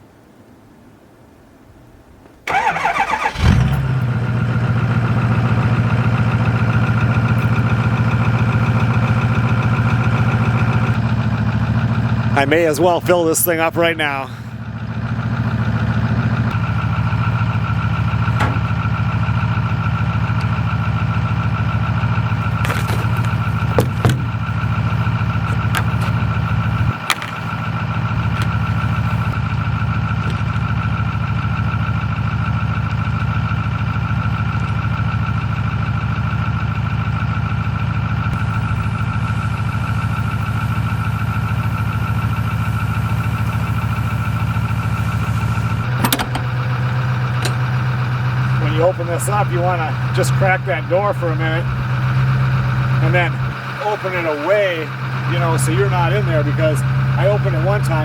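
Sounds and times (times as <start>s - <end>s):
truck engine running: 2.5s - 58.0s
short clicks or knocks: 46.0s - 46.6s.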